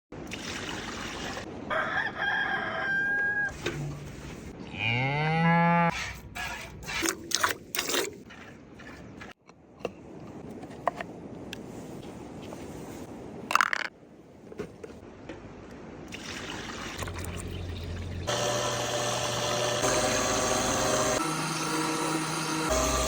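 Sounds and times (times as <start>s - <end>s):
chicken calling: 1.7s - 3.6s
cow mooing: 4.7s - 5.9s.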